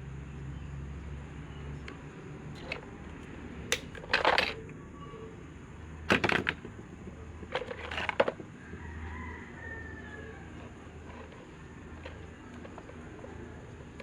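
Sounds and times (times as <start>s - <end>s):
metal parts clinking: 3.7s - 4.7s, 6.1s - 6.7s.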